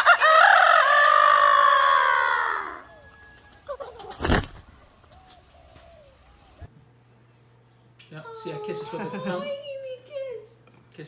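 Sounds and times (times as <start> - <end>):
rooster crowing: 0.0 - 4.2.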